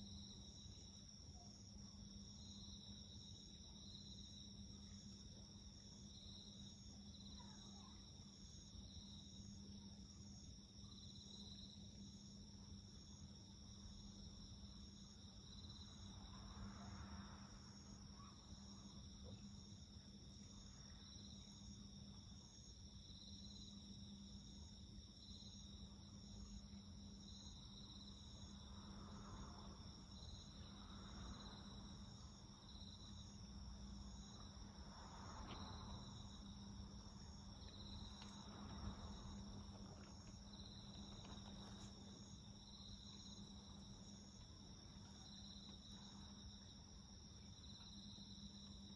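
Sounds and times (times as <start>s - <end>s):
insects trilling: 15.0s - 48.9s.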